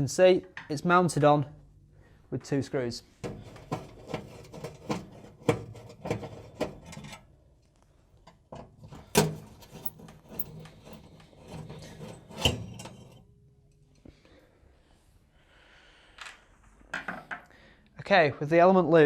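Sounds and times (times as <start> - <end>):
scraping and clicks: 8.9 - 13.2.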